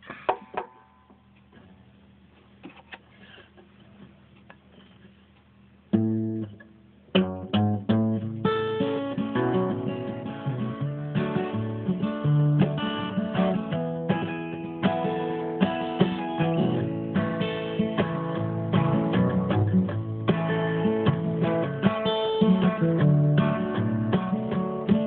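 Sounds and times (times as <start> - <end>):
acoustic guitar strumming chords: 5.9 - 25.0.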